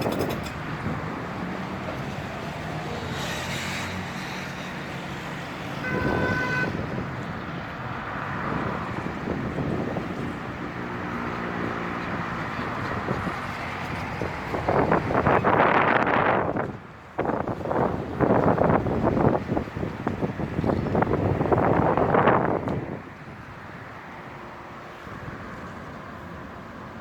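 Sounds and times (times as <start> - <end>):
street traffic: 0.0 - 27.0
wind: 0.0 - 27.0
vehicle horn toot: 5.8 - 6.8.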